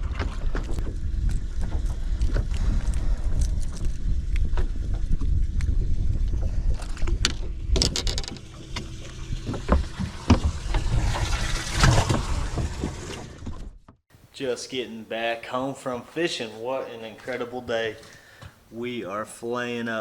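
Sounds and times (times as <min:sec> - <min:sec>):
wind buffeting microphone: 0:00.0 - 0:13.8
handling clicks and knocks: 0:07.8 - 0:08.5.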